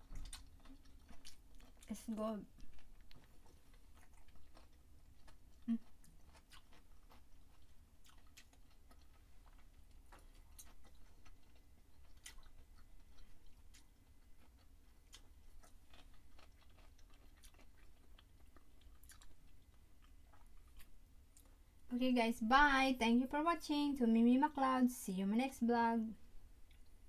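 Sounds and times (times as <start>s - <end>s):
chewing crunches: 0.0s - 21.6s.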